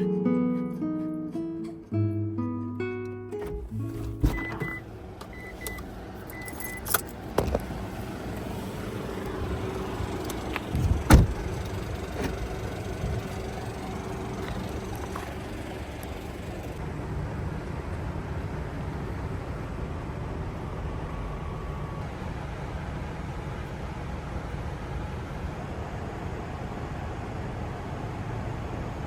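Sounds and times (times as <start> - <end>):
van door thump: 3.4 - 4.8, 7.3 - 7.7, 9.4 - 13.2.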